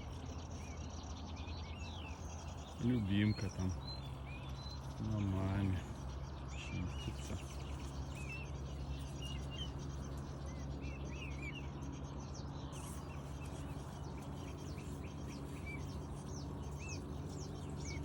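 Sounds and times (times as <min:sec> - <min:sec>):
steady low hum: 0:00.0 - 0:18.0
cygnets peeping: 0:01.6 - 0:11.7.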